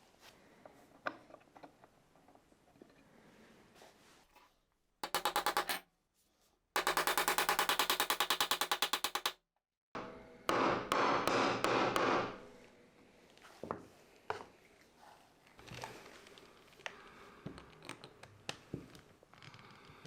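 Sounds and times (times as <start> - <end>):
woodworking tool rapid strokes: 6.8 - 9.3.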